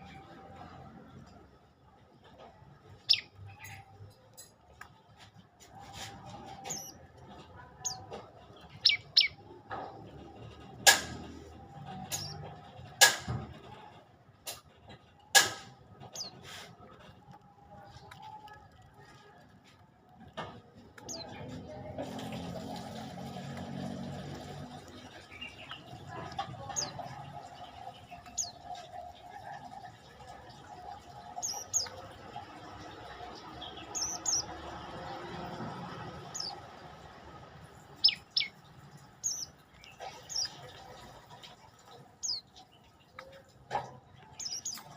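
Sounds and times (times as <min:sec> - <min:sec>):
songbird chirping: 0:00.0 - 0:13.8, 0:20.1 - 0:44.9.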